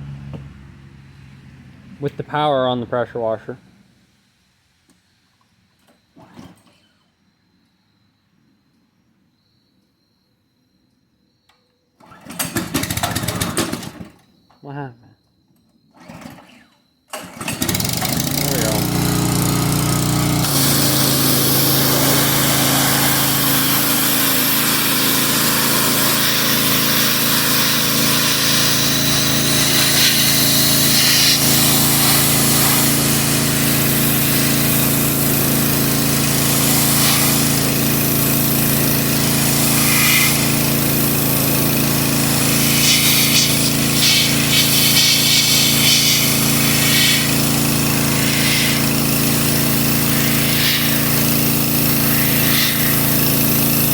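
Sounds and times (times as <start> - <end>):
small petrol engine running: 12.0 - 14.2, 17.1 - 53.9
high-pressure spray hiss: 20.4 - 53.9.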